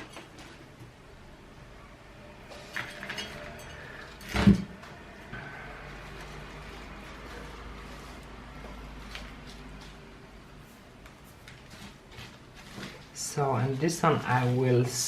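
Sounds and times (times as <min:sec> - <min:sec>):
soil and pot rustling: 0:05.4 - 0:15.0.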